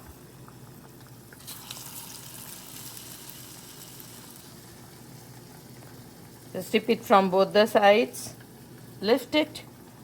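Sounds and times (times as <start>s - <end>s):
fritters sizzling in hot oil: 1.2s - 6.9s.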